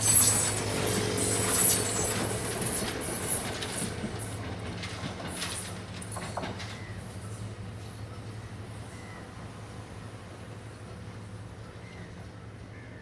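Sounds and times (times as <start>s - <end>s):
high wheel squeal: 0.0s - 3.9s.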